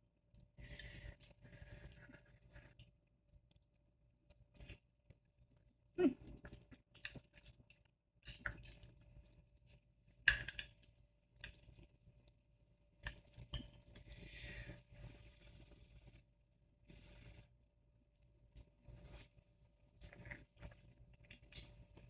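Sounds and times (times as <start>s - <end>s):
chewing: 6.2s - 9.4s, 20.0s - 22.0s.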